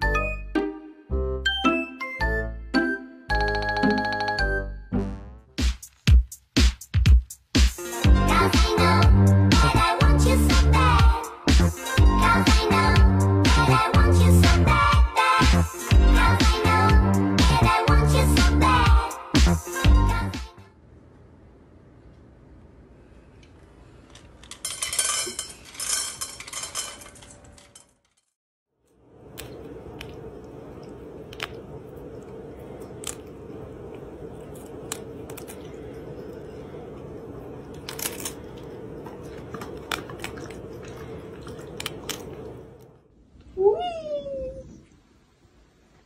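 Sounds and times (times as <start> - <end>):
steady low hum: 28.9 - 43.6
cat crunching lettuce: 29.2 - 42.8.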